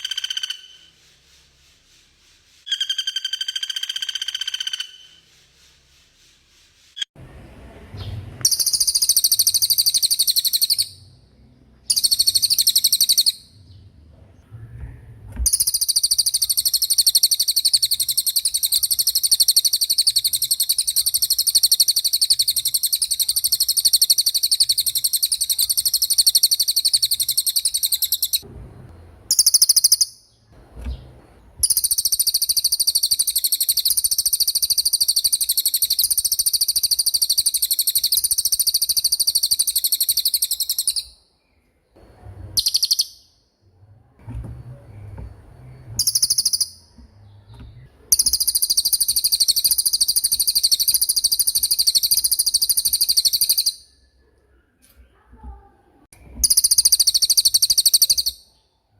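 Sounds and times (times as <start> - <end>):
songbird trilling: 0.0 - 0.9, 2.7 - 5.2, 8.4 - 11.0, 11.9 - 13.6, 15.4 - 28.4, 29.3 - 30.2, 31.6 - 41.2, 42.6 - 43.3, 45.6 - 47.0, 48.1 - 53.9, 56.4 - 58.5.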